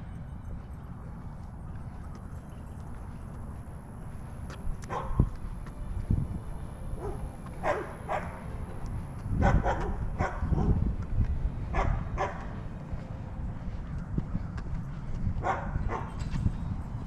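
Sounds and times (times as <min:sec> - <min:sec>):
low rumble: 0:00.0 - 0:17.0
dogs barking: 0:04.8 - 0:05.4, 0:06.9 - 0:08.5, 0:09.3 - 0:10.9, 0:11.7 - 0:12.6, 0:15.4 - 0:16.2.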